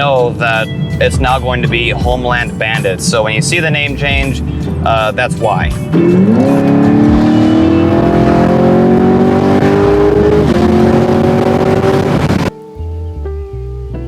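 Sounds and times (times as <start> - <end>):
car engine accelerating hard: 5.8 - 12.6.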